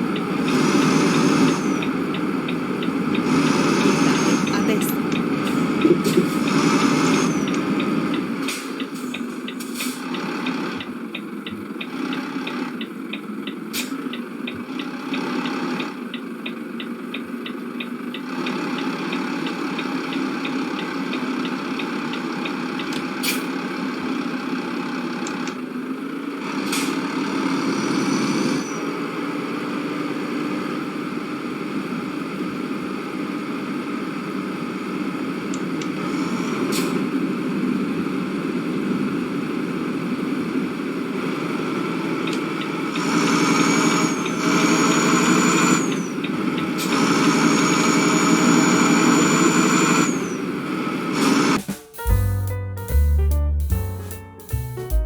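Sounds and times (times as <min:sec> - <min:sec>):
car road and engine noise: 0:00.0 - 0:51.8
turn indicator ticking: 0:07.5 - 0:23.1.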